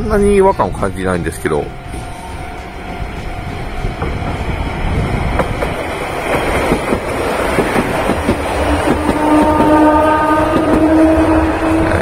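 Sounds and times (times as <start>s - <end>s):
electric train rumbling past: 0.0s - 12.0s
wheels clicking over rail joints: 5.3s - 9.8s.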